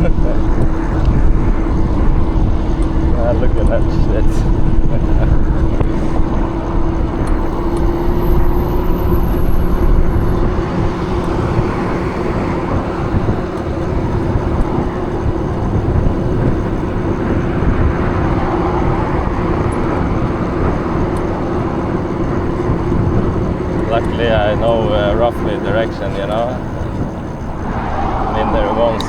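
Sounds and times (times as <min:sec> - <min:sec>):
road noise: 0:00.0 - 0:29.0
wind buffeting microphone: 0:00.0 - 0:29.0
steady hum: 0:19.0 - 0:29.0.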